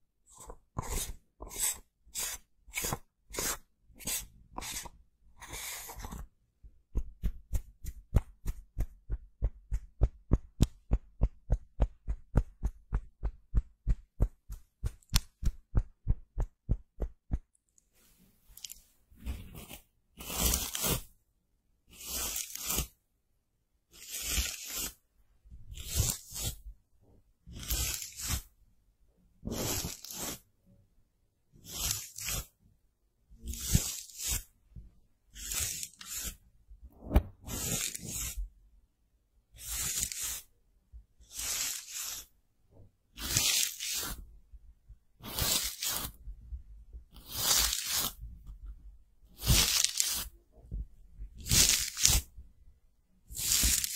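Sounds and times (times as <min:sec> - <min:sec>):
scratchy strokes on microphone: 0:00.3 - 0:06.3, 0:18.0 - 0:21.1, 0:24.0 - 0:25.0, 0:25.7 - 0:26.7, 0:27.5 - 0:28.5, 0:29.4 - 0:30.4, 0:31.6 - 0:32.5, 0:33.4 - 0:34.5, 0:35.4 - 0:38.5, 0:39.6 - 0:40.5, 0:41.3 - 0:42.3, 0:43.2 - 0:44.3, 0:45.2 - 0:46.2, 0:47.2 - 0:48.3, 0:51.4 - 0:52.3, 0:53.3 - 0:53.9.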